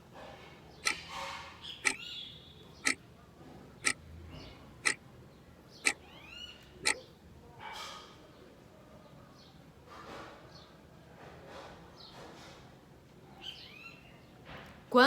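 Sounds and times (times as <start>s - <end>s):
high chirping squeaks: 0.8s - 3.0s.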